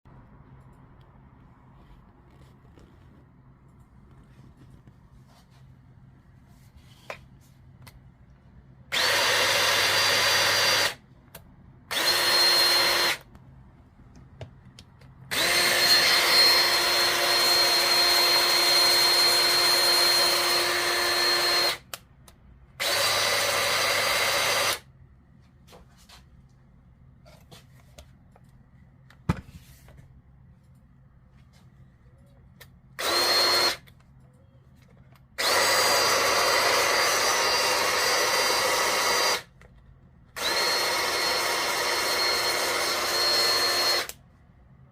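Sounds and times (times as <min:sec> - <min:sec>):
power tool motor whining: 0:08.9 - 0:11.0, 0:11.9 - 0:13.2, 0:15.3 - 0:21.8, 0:22.8 - 0:24.8, 0:33.0 - 0:33.8, 0:35.4 - 0:39.5, 0:40.4 - 0:44.2.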